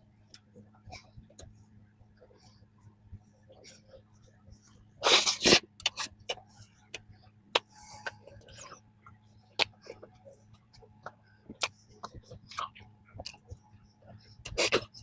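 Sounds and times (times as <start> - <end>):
pastry chewing crunches: 5.0 - 15.0.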